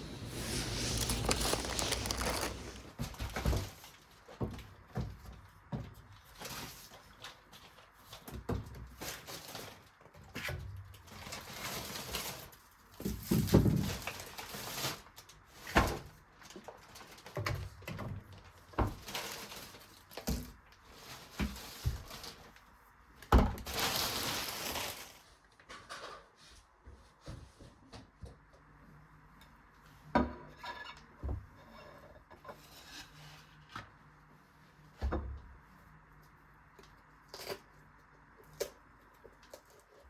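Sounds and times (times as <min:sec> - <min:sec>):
household knocks and clatters: 0:00.0 - 0:03.8.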